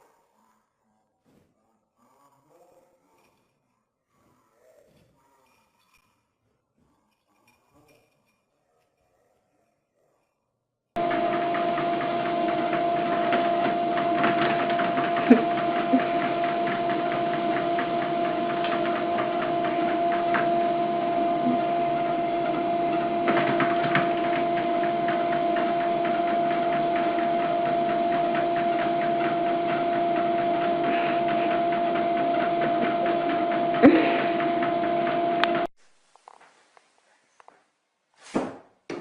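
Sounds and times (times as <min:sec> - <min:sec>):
machine hum with held tones: 0:11.0 - 0:35.7.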